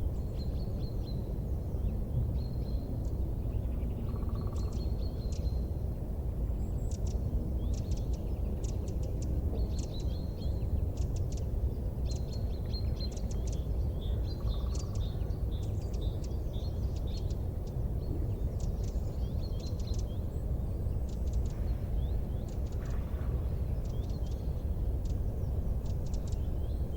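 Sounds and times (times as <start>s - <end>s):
small birds chirping: 6.5s - 26.9s
low rumbling noise: 17.4s - 26.9s.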